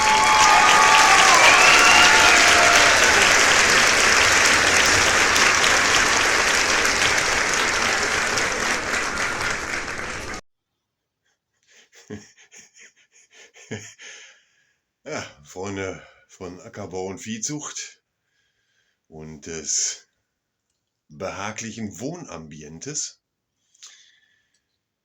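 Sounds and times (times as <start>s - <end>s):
whoops: 0.0s - 4.2s
crowd applauding and cheering: 0.0s - 10.4s.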